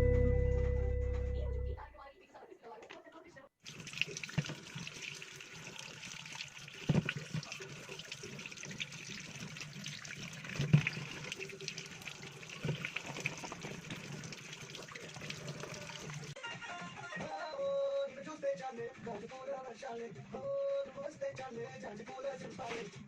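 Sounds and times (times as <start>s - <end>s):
water running from a tap: 3.6s - 16.4s.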